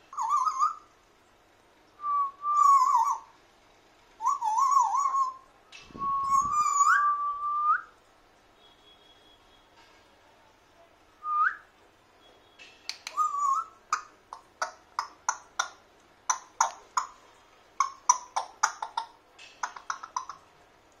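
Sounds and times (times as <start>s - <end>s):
parrot whistling: 0.1s - 0.9s, 2.0s - 3.3s, 4.2s - 5.5s, 6.1s - 7.9s, 12.9s - 17.1s
parrot clicking chirps: 12.9s - 17.2s, 17.8s - 20.4s.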